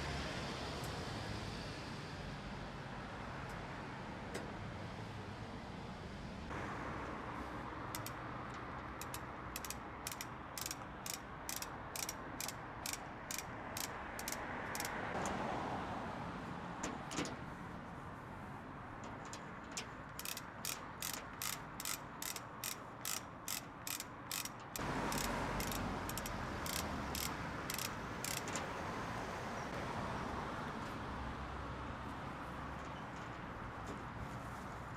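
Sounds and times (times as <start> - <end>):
hoist ratchet clicking: 7.9 - 15.4, 19.0 - 28.8.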